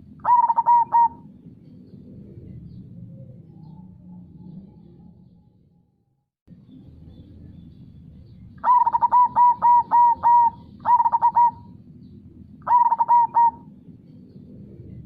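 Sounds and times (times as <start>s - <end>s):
dove cooing: 0.0s - 2.8s, 8.6s - 11.8s, 12.6s - 13.8s.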